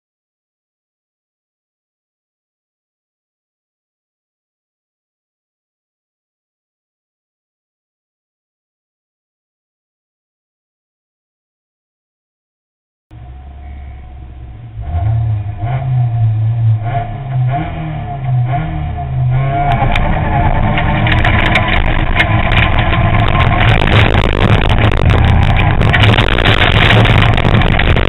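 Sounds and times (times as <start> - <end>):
rally car engine revving: 13.1 - 28.0
clatter from loose surface: 19.7 - 28.0.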